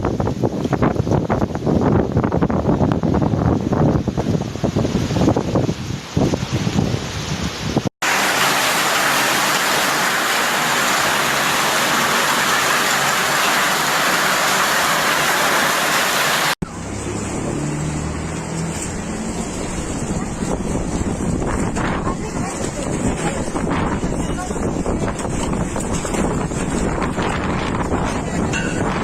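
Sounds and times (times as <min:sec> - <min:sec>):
heavy rain and wind hiss: 0:00.0 - 0:29.0
low wind noise: 0:00.0 - 0:29.0.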